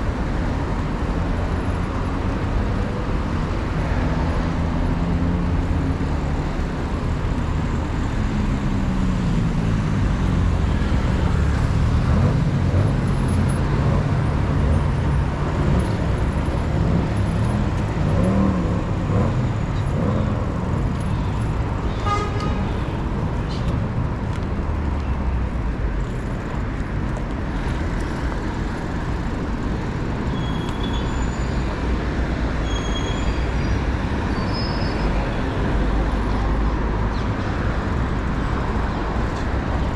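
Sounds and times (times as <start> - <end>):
car and bus engines passing: 0.0 - 39.9
short horn toot: 22.0 - 22.7.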